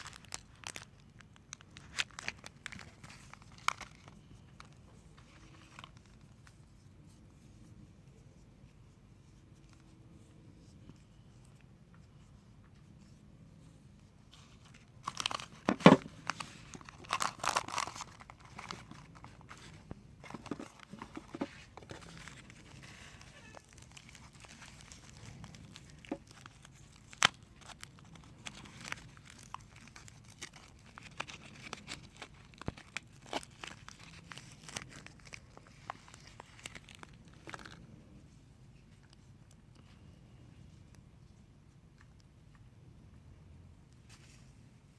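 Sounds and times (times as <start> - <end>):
soap wrapper crinkling: 0.0 - 6.6, 14.3 - 38.0.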